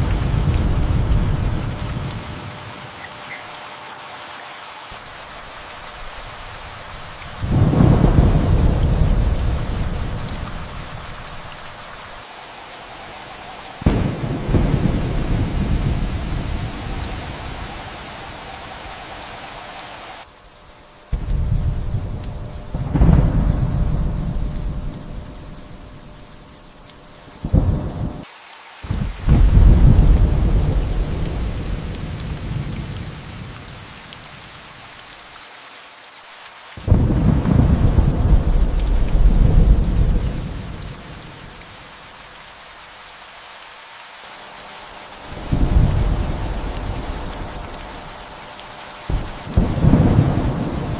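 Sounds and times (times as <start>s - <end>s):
thunder rumbling: 0.0s - 3.0s, 6.4s - 11.8s, 12.9s - 19.5s, 21.1s - 26.4s, 27.4s - 28.2s, 28.9s - 33.7s, 36.8s - 41.6s, 45.2s - 50.9s
steady rain: 0.0s - 50.9s.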